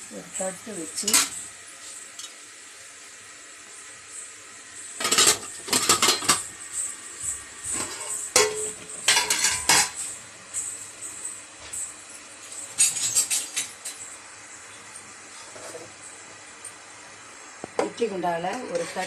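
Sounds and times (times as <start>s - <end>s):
metal dishes clinking: 5.0s - 6.5s, 7.7s - 10.0s, 12.5s - 14.0s.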